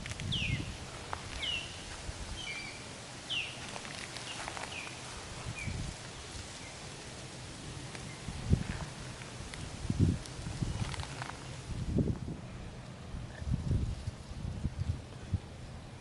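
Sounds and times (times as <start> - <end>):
songbird chirping: 0.0 - 9.8.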